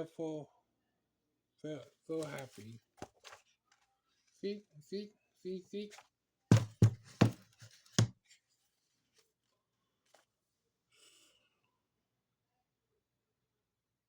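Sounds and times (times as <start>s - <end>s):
faint paper rustle: 1.8s - 4.4s, 5.9s - 10.4s
knocks and taps on a book: 6.5s - 8.2s.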